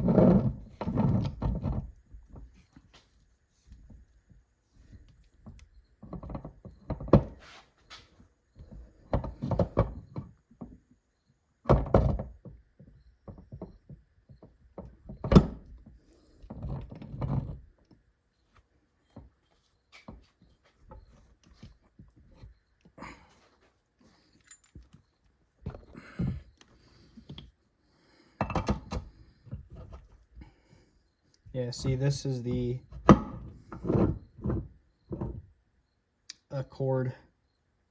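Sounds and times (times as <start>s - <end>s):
metal transmission parts clunking: 28.3s - 30.3s.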